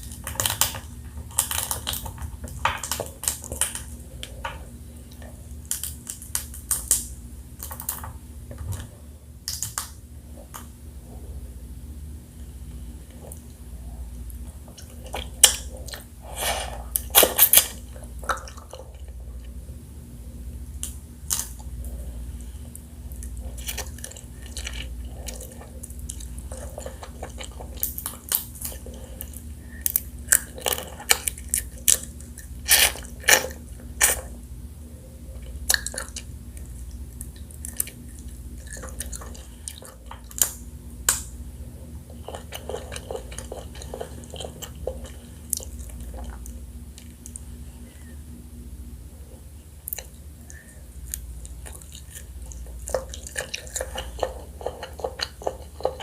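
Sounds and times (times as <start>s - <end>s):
low steady hum: 0.0s - 56.0s
wet chewing and sucking: 42.0s - 47.4s, 49.9s - 56.0s.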